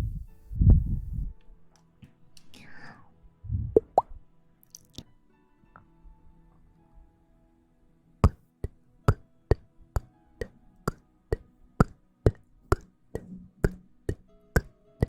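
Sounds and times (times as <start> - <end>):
faint soft tones: 0.0 - 15.0
sharp wooden clicks: 8.2 - 14.7.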